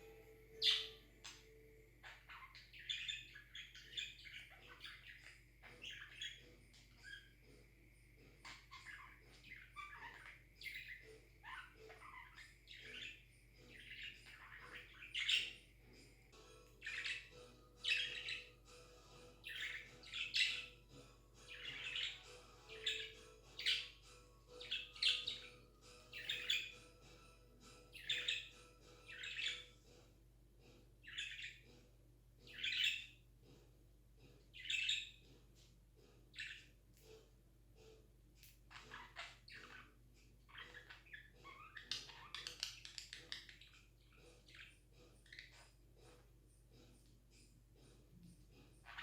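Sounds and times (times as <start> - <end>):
budgie chirping: 0.5 - 7.6, 8.4 - 15.6, 16.8 - 18.6, 19.2 - 27.2.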